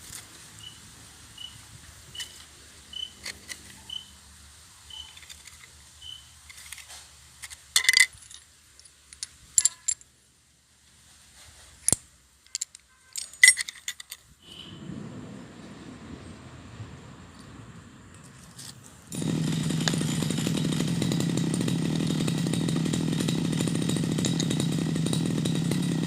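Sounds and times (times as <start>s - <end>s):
metal objects clinking: 6.5s - 10.1s, 11.8s - 14.3s.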